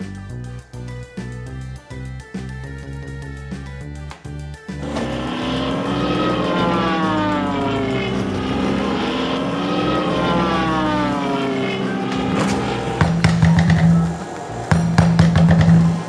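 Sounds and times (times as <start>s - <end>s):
music: 0.0s - 16.0s
cartoon propeller airplane drone: 4.7s - 16.0s.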